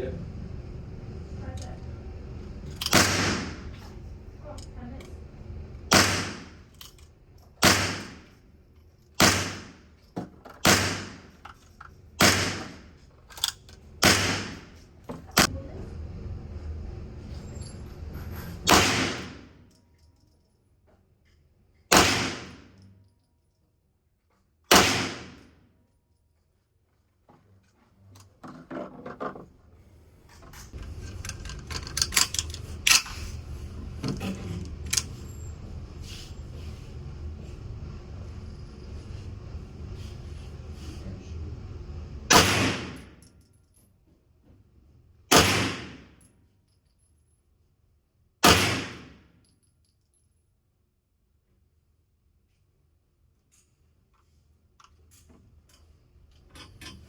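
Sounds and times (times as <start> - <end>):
gunshots with echo: 2.9 - 3.7, 5.9 - 6.6, 7.6 - 8.2, 9.2 - 9.8, 10.7 - 11.2, 14.0 - 14.7, 18.7 - 19.4, 21.9 - 22.6, 24.7 - 25.4, 42.3 - 43.0, 45.3 - 46.0
metallic clicking and rattling: 13.2 - 13.8, 30.4 - 33.3.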